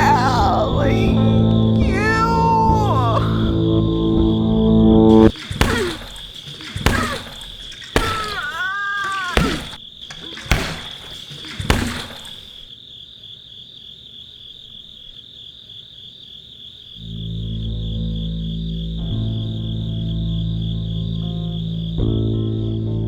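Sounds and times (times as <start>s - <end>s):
sharp knocks: 5.1s - 12.6s.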